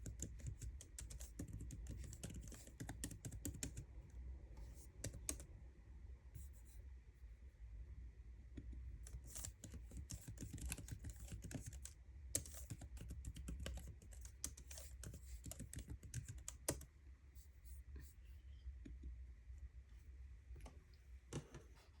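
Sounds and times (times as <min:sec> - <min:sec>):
laptop keyboard typing: 0:00.0 - 0:03.9, 0:04.8 - 0:05.5, 0:09.1 - 0:16.9.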